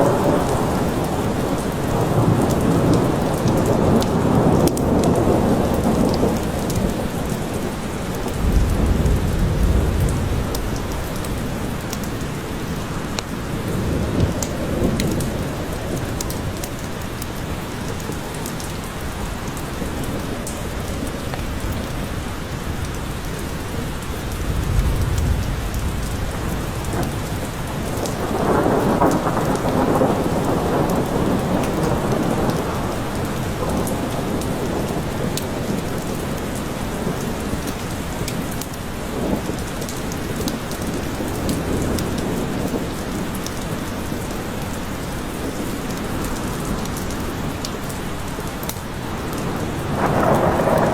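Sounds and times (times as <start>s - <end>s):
rolling thunder: 0.0s - 16.7s, 19.0s - 36.2s, 49.2s - 50.9s
heavy rain in a forest: 0.0s - 50.9s.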